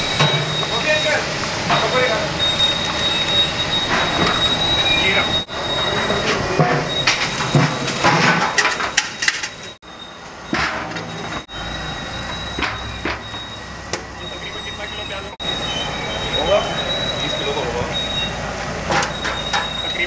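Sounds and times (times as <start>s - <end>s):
background voices: 0.0s - 9.0s.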